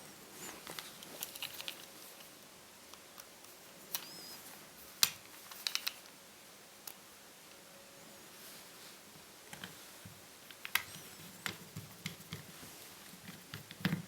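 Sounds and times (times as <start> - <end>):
clicks and taps of small parts: 5.0 - 6.1, 10.5 - 12.5, 13.2 - 14.0.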